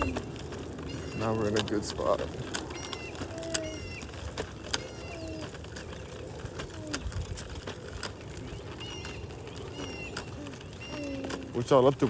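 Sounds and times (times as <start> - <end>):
bird calling falling notes: 2.6 - 6.0, 8.5 - 11.8.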